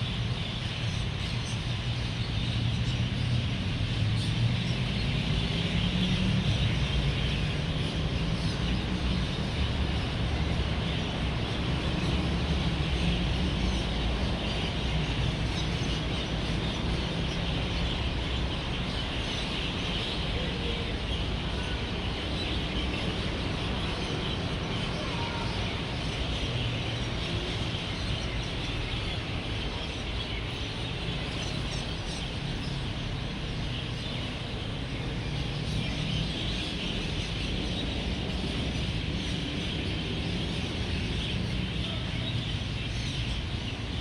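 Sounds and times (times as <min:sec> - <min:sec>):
flock of birds chirping: 0:00.0 - 0:44.0
road traffic rumble: 0:00.0 - 0:44.0.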